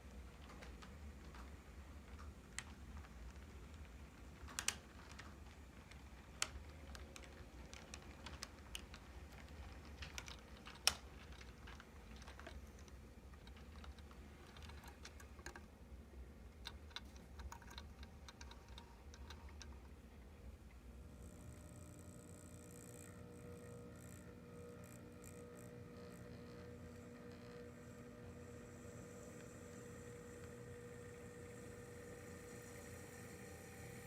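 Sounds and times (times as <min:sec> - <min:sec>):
model train clicking on track: 0:00.0 - 0:20.0
faint low hum: 0:00.0 - 0:34.0.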